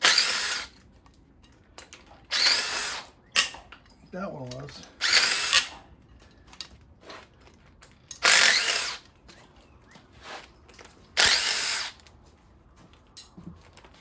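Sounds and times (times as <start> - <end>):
power driver spinning bolts: 0.0 - 12.1
faint metal clinks: 3.2 - 8.3.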